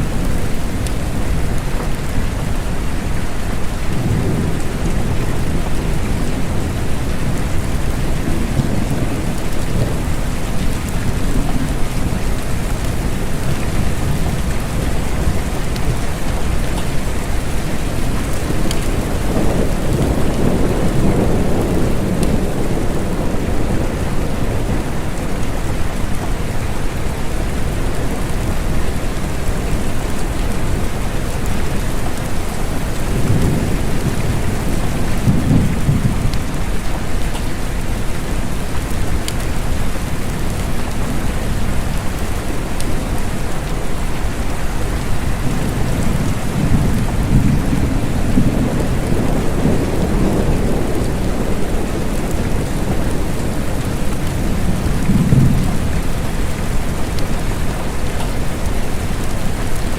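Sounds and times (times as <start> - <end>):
steady rain: 0.0 - 59.9
low rolling thunder: 3.8 - 37.3, 44.8 - 58.0.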